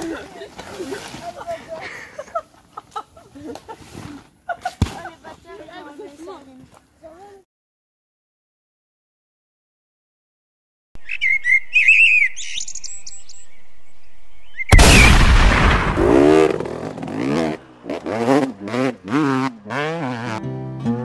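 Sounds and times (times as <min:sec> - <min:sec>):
bird chirps: 0:11.0 - 0:14.8
loud boom: 0:14.7 - 0:17.0.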